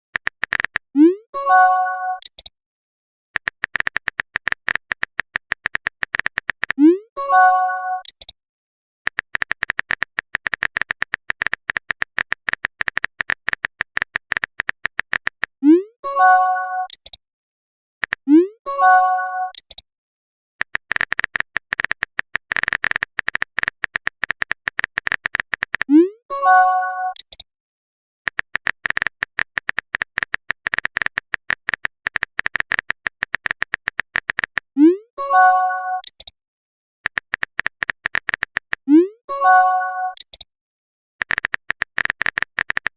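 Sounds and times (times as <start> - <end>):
electronic typing clicks: 0.1 - 2.5, 3.4 - 8.4, 9.1 - 17.2, 18.0 - 19.8, 20.6 - 27.5, 28.3 - 36.4, 37.0 - 40.5, 41.2 - 42.9
electronic message chime: 39.3 - 40.2.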